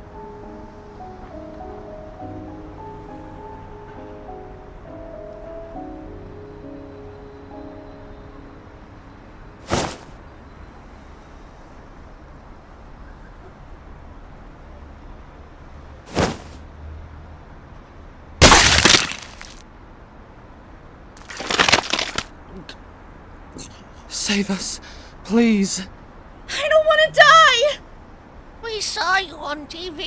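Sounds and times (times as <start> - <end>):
sharp crashes: 18.4 - 19.6, 21.2 - 22.7.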